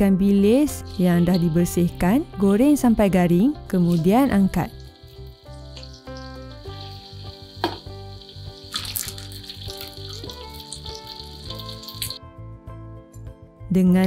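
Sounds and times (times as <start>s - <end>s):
background music with bass: 0.0s - 14.0s
fish sizzling in hot oil: 0.7s - 2.9s, 3.7s - 12.2s.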